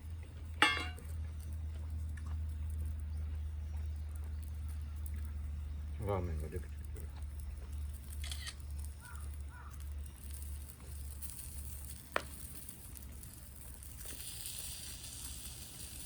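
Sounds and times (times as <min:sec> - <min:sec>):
wood fire burning: 0:00.0 - 0:16.0
sharp crack of fire: 0:07.8 - 0:16.0
hiss: 0:13.9 - 0:16.0.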